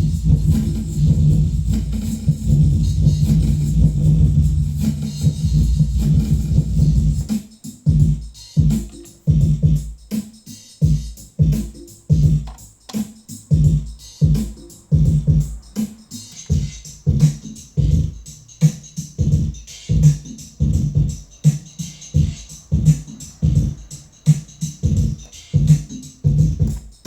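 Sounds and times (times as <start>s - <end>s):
hissy high synth layer: 0.0s - 7.8s, 13.2s - 26.3s
electronic drum and synth bass groove: 0.0s - 27.0s.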